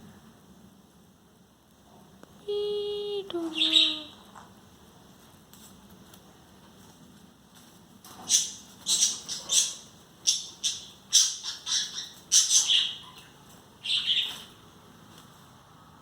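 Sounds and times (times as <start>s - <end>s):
parrot high calls: 8.3s - 14.5s.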